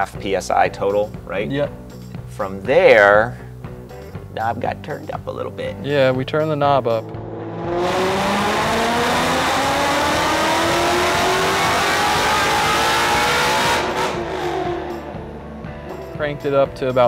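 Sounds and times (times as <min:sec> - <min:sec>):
car engine revving: 0:06.4 - 0:16.0.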